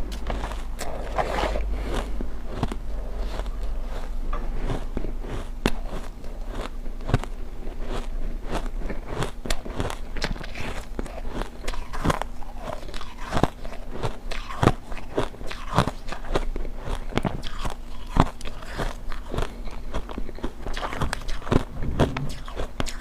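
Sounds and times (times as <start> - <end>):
ice crunching as it is chewed: 0.0 - 23.0.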